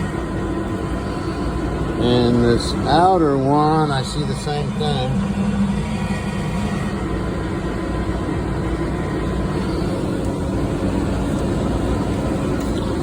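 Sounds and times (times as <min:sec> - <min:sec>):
air-handling equipment running: 0:00.0 - 0:13.0
faint steady whine: 0:00.0 - 0:13.0.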